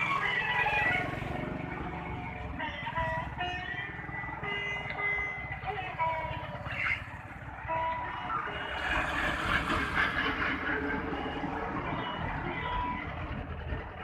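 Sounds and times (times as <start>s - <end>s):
motorcycle engine rumbling: 0.0s - 14.0s
beeping electronic tune: 10.5s - 13.2s.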